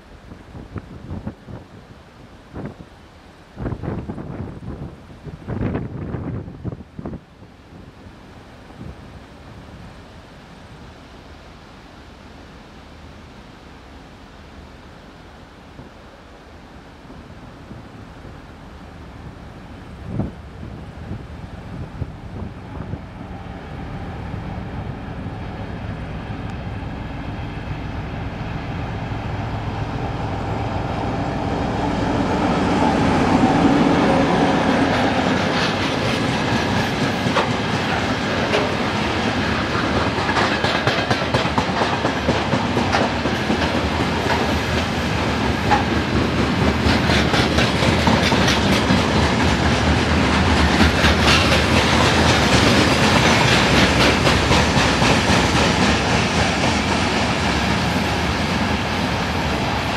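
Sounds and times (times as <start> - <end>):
diesel locomotive engine: 0.0 - 59.9
freight wagons clickety-clack: 35.4 - 45.0, 45.6 - 58.8.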